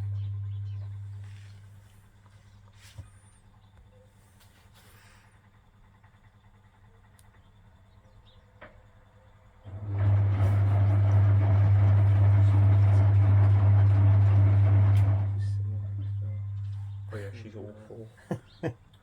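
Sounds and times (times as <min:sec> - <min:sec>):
washing machine motor humming: 0:00.0 - 0:01.8, 0:09.6 - 0:17.8.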